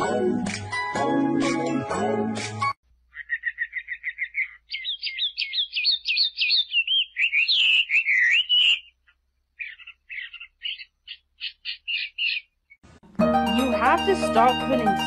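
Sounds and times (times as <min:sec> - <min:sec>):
songbird singing: 0:02.9 - 0:12.8.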